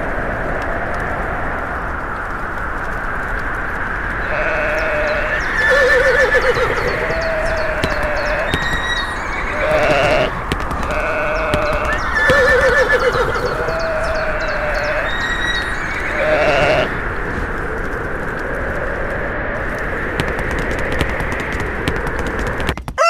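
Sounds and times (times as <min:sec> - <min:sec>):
farm animal cries: 0:04.2 - 0:17.0.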